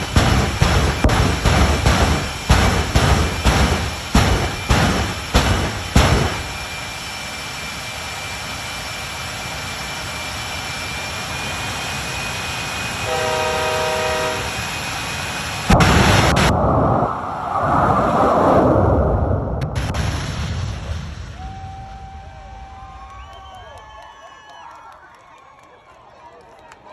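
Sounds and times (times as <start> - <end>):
truck running and road noise: 0.0 - 21.4
loud rush of noise: 0.0 - 23.1
truck horn chord: 13.1 - 14.5.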